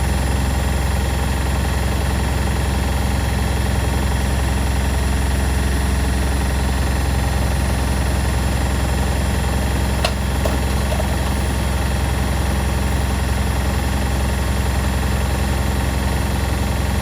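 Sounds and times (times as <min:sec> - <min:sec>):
washing machines humming: 0:05.2 - 0:17.0.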